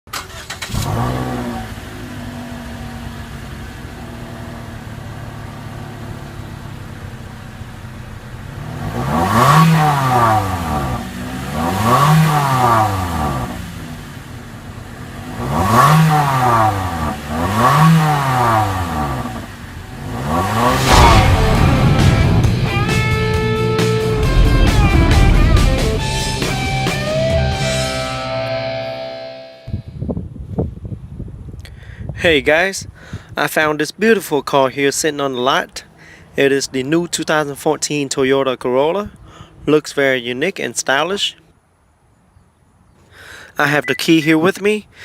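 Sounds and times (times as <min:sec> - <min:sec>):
car engine revving: 0:00.1 - 0:28.8
car engine starting and idling: 0:00.1 - 0:29.0.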